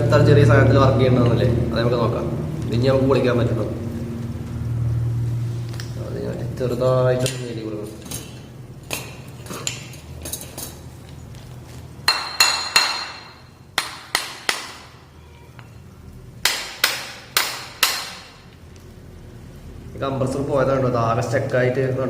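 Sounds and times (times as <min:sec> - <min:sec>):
hammer striking metal: 0:12.1 - 0:15.0, 0:16.4 - 0:18.4.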